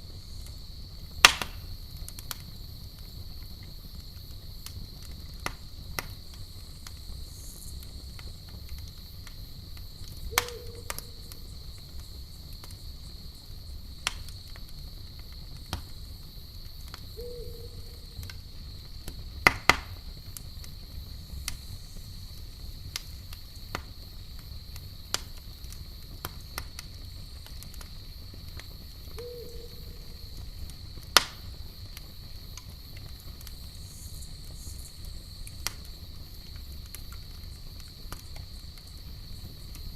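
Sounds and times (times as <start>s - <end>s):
campfire crackling and popping: 0.0s - 39.9s
high insect trill: 8.9s - 14.5s, 15.4s - 19.1s, 27.0s - 35.4s.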